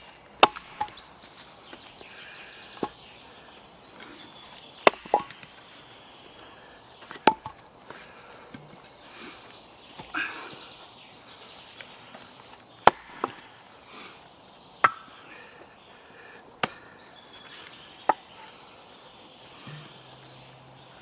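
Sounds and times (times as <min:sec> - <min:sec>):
axe splitting log: 0:00.4 - 0:01.0, 0:04.8 - 0:05.5, 0:07.1 - 0:07.6, 0:12.8 - 0:13.5.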